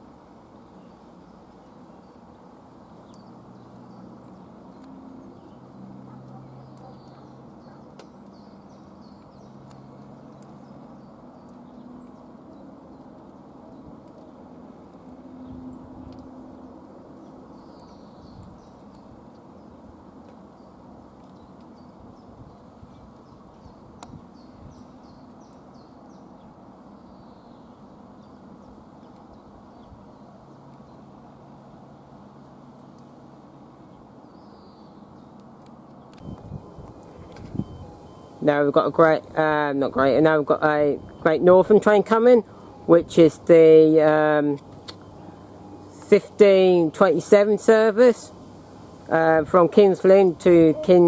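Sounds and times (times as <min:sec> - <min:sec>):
low outdoor hum: 0:00.0 - 0:51.0
faint bird chirps: 0:05.3 - 0:12.2.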